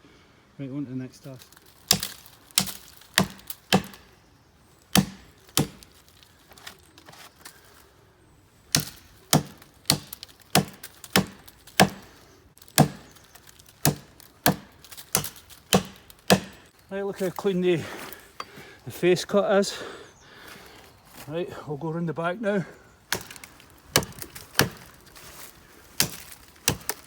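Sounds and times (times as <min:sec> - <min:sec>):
axe chopping tree trunk: 0:01.4 - 0:04.1, 0:04.9 - 0:06.7, 0:08.7 - 0:16.7, 0:23.1 - 0:27.0.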